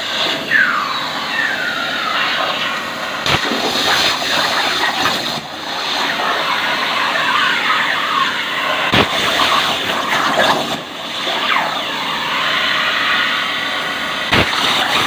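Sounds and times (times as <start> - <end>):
plasma arc hissing: 0.0 - 11.6
sharp crack: 1.4 - 6.5, 8.9 - 11.8, 14.3 - 15.0.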